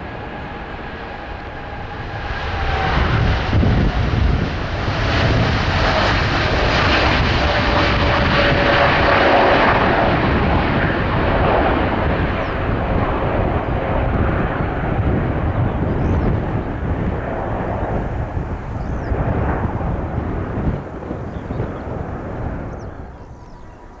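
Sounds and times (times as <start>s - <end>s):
jet airliner taking off: 0.0s - 24.0s
jet engine whine: 0.0s - 24.0s.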